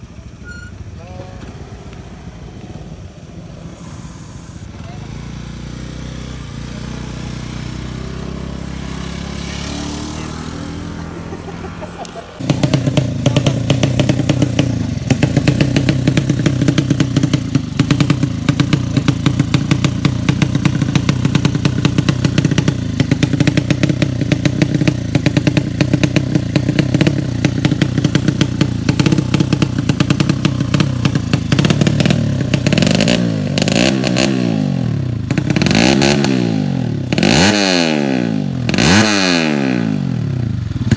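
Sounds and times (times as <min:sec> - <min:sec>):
motorcycle engine revving with crackle: 0:12.0 - 0:40.9.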